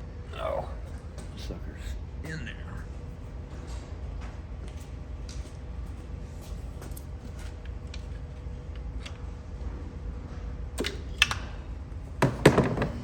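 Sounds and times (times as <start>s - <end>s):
steady low hum: 0.0s - 13.0s
knocks and rattles: 12.2s - 13.0s.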